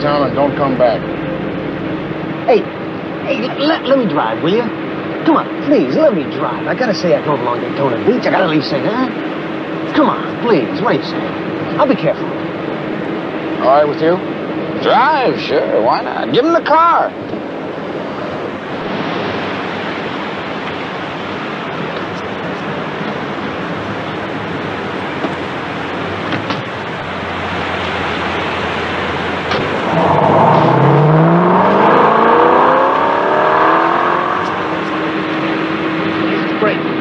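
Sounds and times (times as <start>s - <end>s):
wind rushing: 0.0s - 3.4s
car engine revving: 0.0s - 37.0s.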